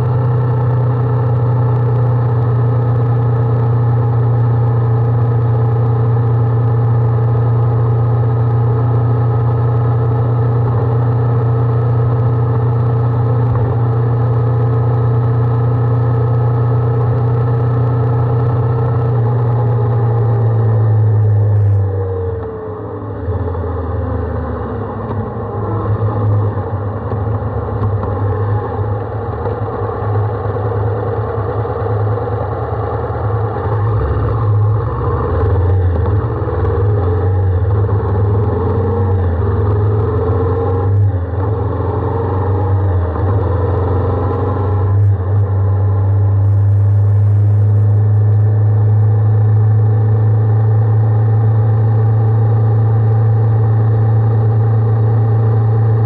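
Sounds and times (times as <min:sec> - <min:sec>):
heavy low drone: 0:00.0 - 0:56.0
motorcycle engine running: 0:00.0 - 0:56.0.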